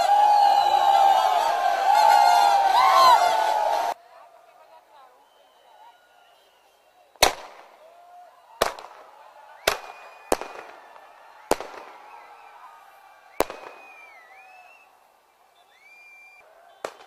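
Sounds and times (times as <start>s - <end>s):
fireworks bangs with echo: 7.2s - 7.7s, 8.6s - 12.1s, 13.4s - 14.0s, 16.8s - 17.0s.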